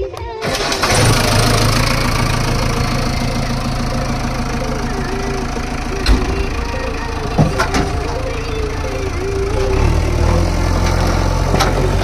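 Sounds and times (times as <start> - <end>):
diesel engine running: 0.4 - 12.0.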